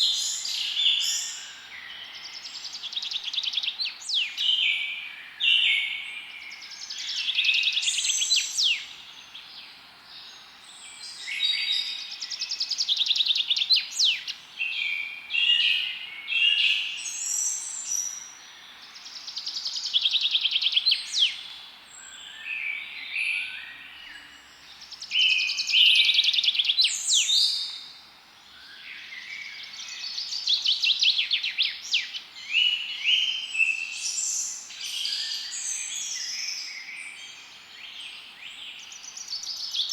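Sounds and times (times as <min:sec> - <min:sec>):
faint steady background hiss: 0:00.0 - 0:39.9
songbirds singing trills: 0:00.0 - 0:39.9.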